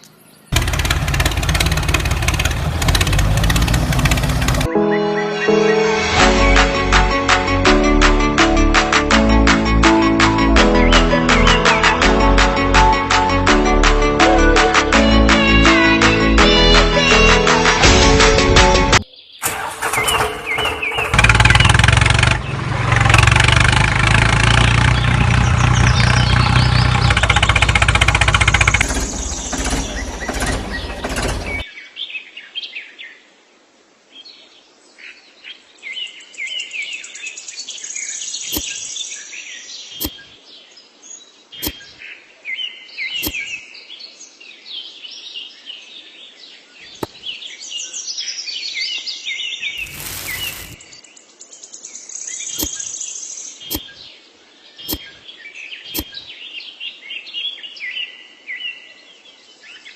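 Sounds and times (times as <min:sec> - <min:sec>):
birds chirping: 0:00.0 - 0:05.8, 0:19.0 - 0:32.0, 0:37.8 - 0:45.0, 0:45.8 - 0:57.8
sharp clicks: 0:43.2 - 0:43.4.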